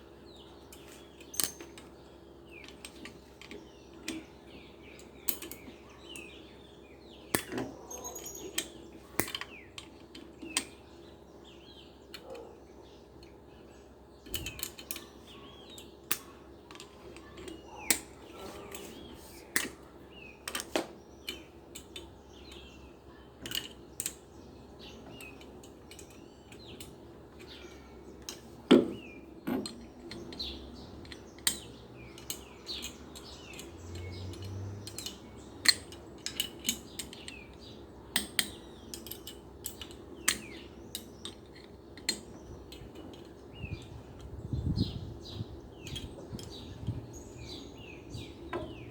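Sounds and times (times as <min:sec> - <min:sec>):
birds chirping: 0:00.0 - 0:48.9
metal parts and tools clinking: 0:00.7 - 0:01.9, 0:05.0 - 0:06.3, 0:07.3 - 0:10.7, 0:14.2 - 0:19.8, 0:23.4 - 0:24.2, 0:25.0 - 0:27.6, 0:28.2 - 0:44.4.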